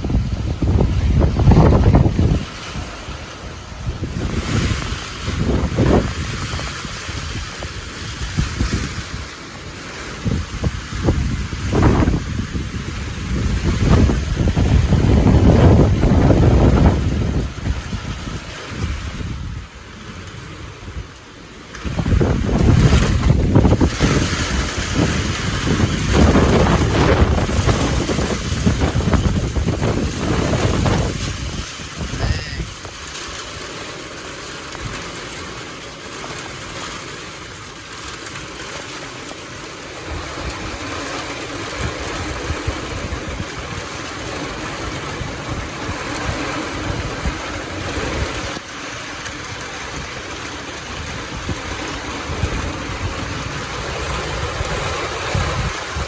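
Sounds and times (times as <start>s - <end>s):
wind buffeting microphone: 0.0s - 35.3s, 36.8s - 56.0s
heavy rain hissing: 0.0s - 56.0s.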